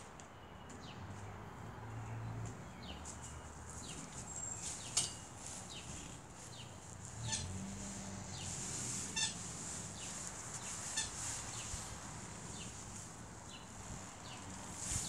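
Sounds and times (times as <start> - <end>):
birds chirping: 0.0 - 15.0
buzzy bird calls: 3.1 - 15.0.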